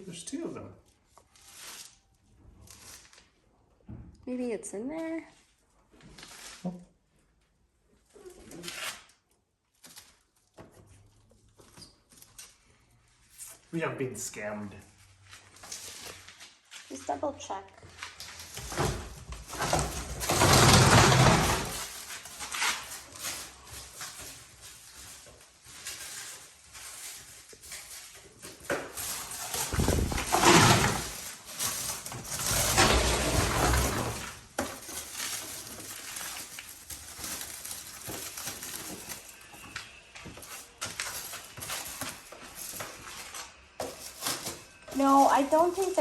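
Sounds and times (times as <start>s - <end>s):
packaging rustling by hand: 18.0s - 46.0s.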